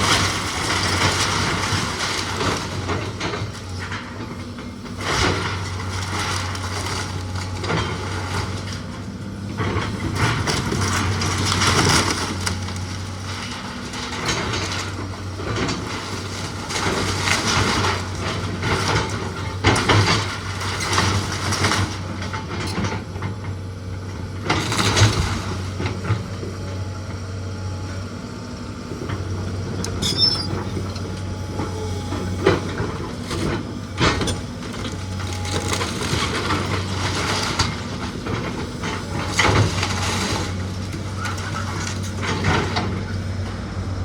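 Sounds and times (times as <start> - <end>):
machine engine hum: 0.0 - 44.0
wood breaking and collapsing: 32.6 - 42.8.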